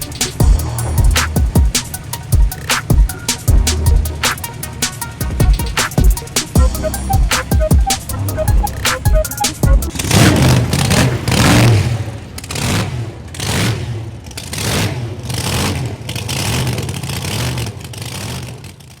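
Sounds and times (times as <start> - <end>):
car engine revving: 9.8 - 18.4.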